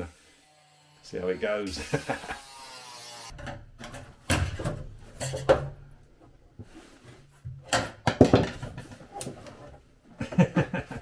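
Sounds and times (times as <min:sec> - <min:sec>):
tools and metal clattering: 0:03.3 - 0:06.0, 0:07.3 - 0:09.8.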